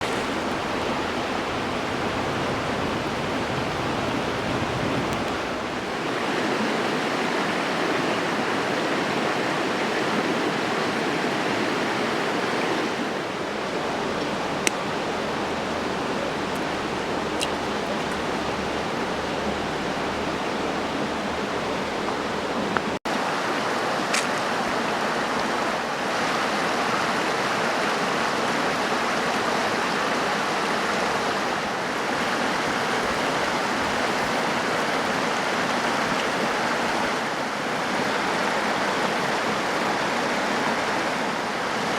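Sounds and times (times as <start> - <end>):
campfire hissing: 0.0 - 25.5.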